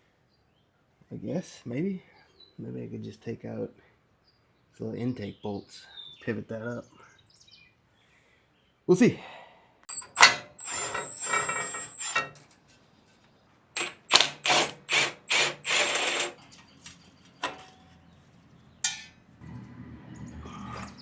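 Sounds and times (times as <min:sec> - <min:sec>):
ratchet wrench ratcheting: 0:13.8 - 0:16.4.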